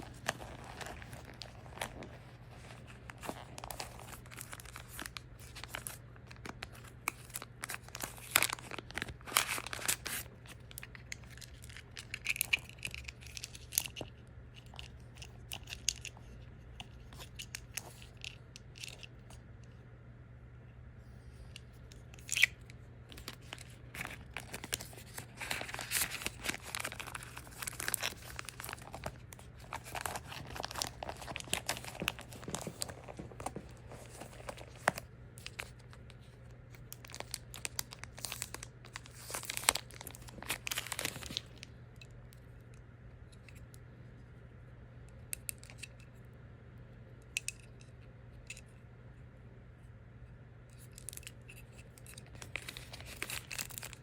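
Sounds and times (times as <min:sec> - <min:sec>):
packaging crinkling and tearing: 0:00.0 - 0:16.2, 0:21.9 - 0:41.8, 0:50.8 - 0:51.4, 0:52.0 - 0:54.0.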